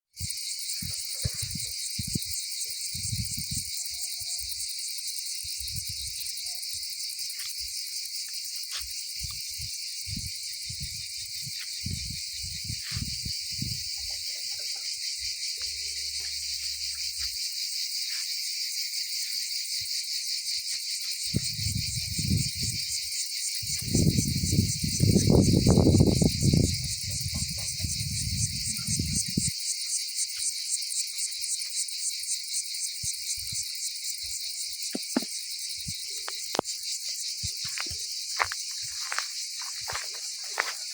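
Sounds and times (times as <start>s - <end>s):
wind buffeting microphone: 0.2s - 3.8s, 9.2s - 14.1s, 21.3s - 23.0s, 23.6s - 29.5s
insects chirring: 0.2s - 40.9s.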